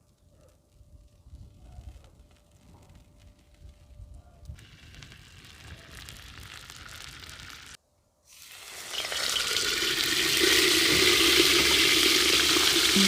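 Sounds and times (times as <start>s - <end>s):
food sizzling in hot oil: 4.6s - 13.0s.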